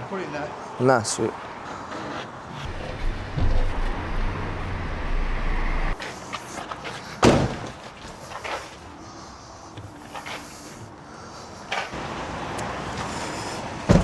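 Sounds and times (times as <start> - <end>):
low rumble: 2.7 - 6.0
vehicle door slamming: 2.7 - 6.0.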